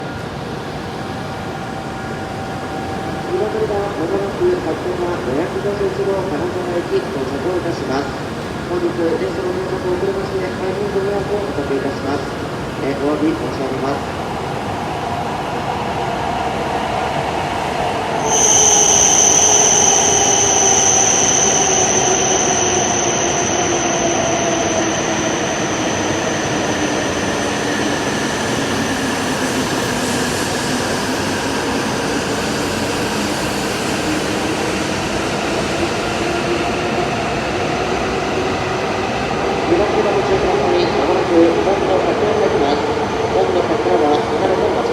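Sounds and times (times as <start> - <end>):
rail noise: 0.0 - 44.9
loud high-pitched squeal: 17.6 - 32.4.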